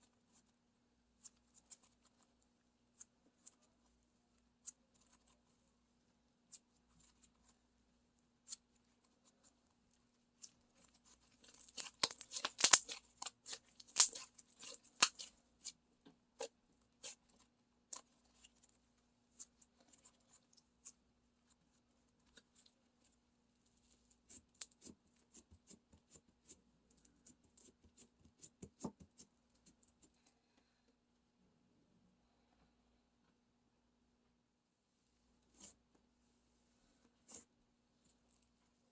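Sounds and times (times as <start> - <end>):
slime crackling and popping: 10.4 - 15.8.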